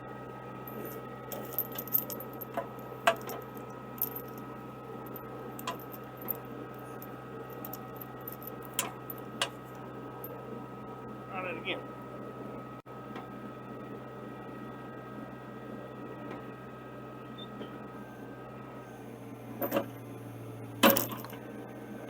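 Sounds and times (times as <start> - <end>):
machine engine idling hum: 0.0 - 22.0
metal chain clanking: 0.7 - 4.5, 5.1 - 9.8, 20.8 - 21.4.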